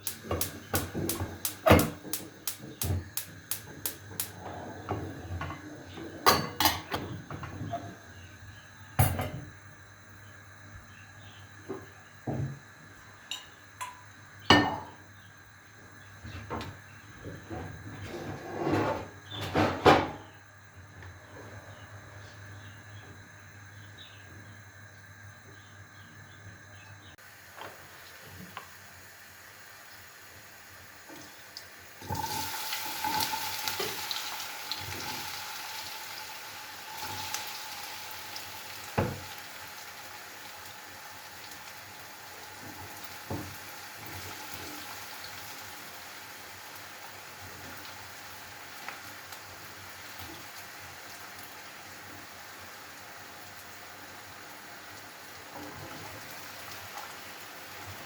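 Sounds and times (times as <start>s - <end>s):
utensil knocking on pan: 0.0s - 4.3s
food sizzling in hot oil: 0.0s - 4.4s, 27.2s - 58.0s.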